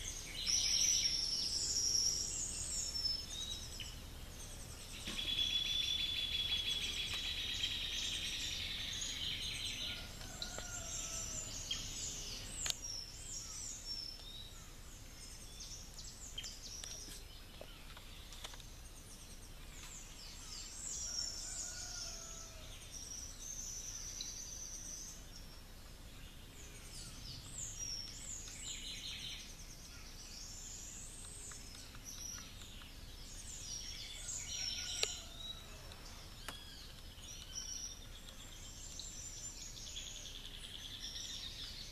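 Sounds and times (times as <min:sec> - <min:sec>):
birds singing and trilling: 0:00.0 - 0:41.9.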